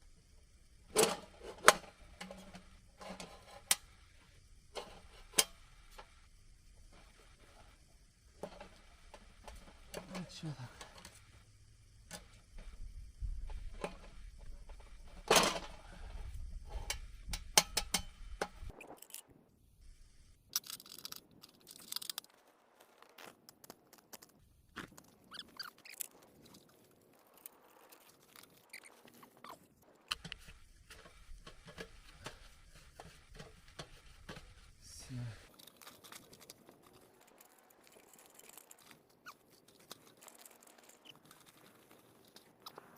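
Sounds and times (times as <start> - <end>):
rustling: 18.1 - 42.9
metal pieces clicking and knocking: 20.5 - 22.3.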